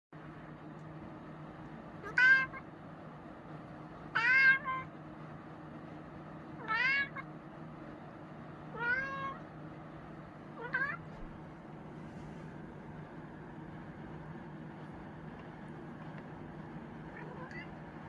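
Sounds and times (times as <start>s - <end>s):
cat meowing: 2.0s - 2.7s, 4.1s - 4.9s, 6.6s - 7.3s, 8.7s - 9.5s, 10.6s - 11.2s, 17.1s - 17.8s.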